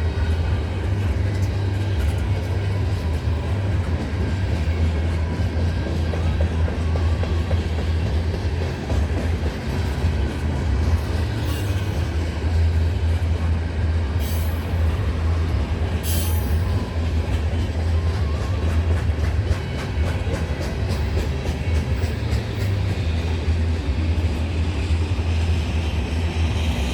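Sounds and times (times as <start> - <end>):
freight train rumbling past: 0.0 - 26.9
wheels clicking over rail joints: 14.2 - 26.4.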